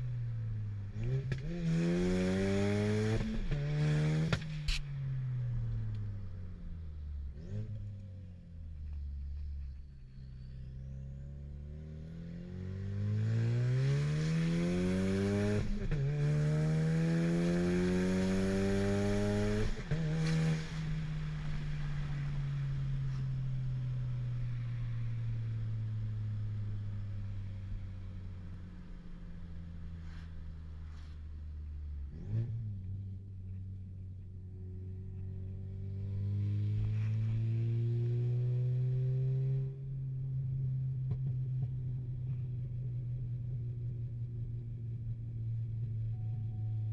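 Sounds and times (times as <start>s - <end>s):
car engine accelerating hard: 0.9s - 4.8s, 10.9s - 24.0s, 34.7s - 39.9s.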